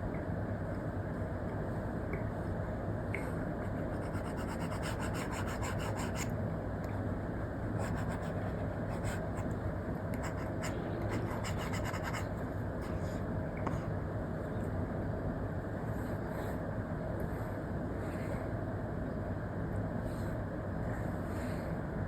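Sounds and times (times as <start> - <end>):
low background noise: 0.0 - 22.0
stylus scratching on screen: 3.7 - 6.3, 10.2 - 12.3.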